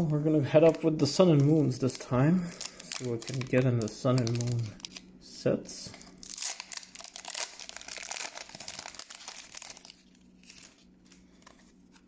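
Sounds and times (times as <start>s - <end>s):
foil wrapper crinkling and tearing: 0.6s - 5.1s, 6.1s - 12.0s.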